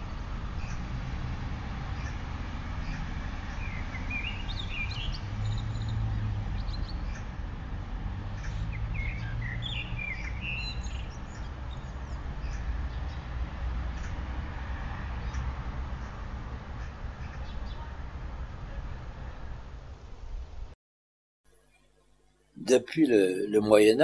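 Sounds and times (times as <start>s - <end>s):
songbirds chirping: 1.8s - 14.2s, 15.0s - 20.6s.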